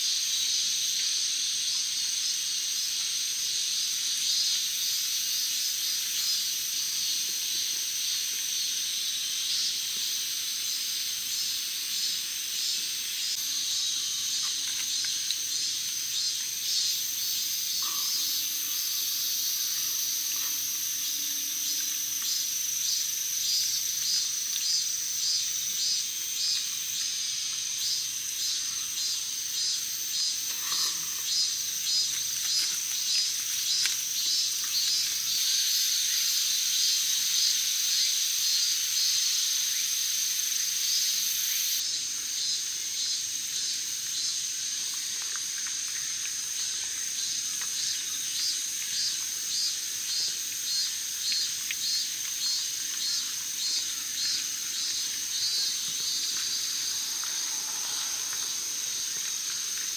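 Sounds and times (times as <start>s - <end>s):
pulsing insect chirp: 10.6s - 45.0s, 46.0s - 59.9s
high-pitched insect buzz: 49.5s - 59.9s.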